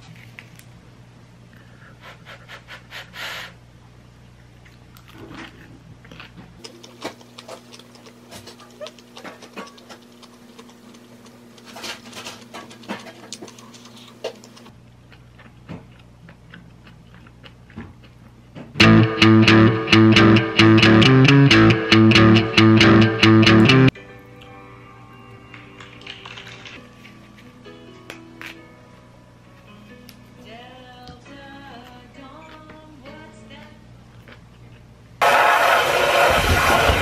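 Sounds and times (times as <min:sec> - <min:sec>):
person chewing: 0:04.4 - 0:18.5, 0:34.1 - 0:34.9
loud guitar music: 0:18.8 - 0:23.9.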